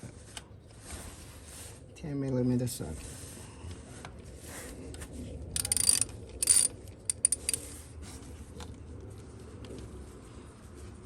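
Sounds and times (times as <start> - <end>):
metal hand tools clinking: 5.6 - 7.6.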